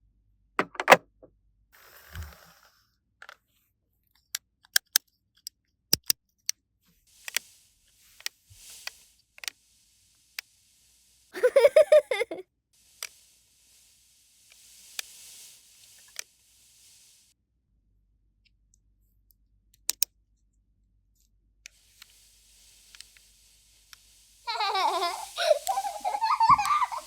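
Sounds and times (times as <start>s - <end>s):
plastic toy pieces clicking: 4.7s - 6.2s
soft rustles: 24.4s - 27.0s.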